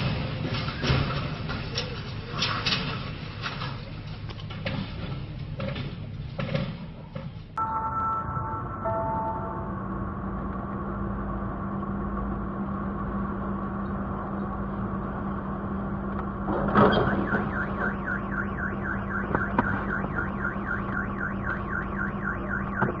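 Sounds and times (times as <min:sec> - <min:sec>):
vehicle hum: 0:00.0 - 0:23.0
car alarm warbling: 0:07.6 - 0:10.0, 0:16.8 - 0:23.0.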